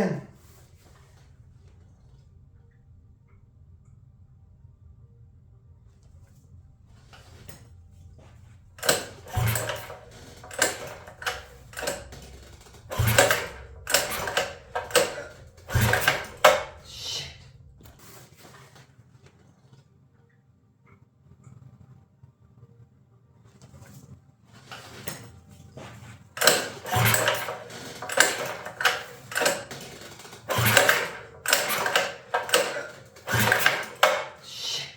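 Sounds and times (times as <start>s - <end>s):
recoil starter cord yanks: 8.8s - 18.6s, 24.6s - 34.9s.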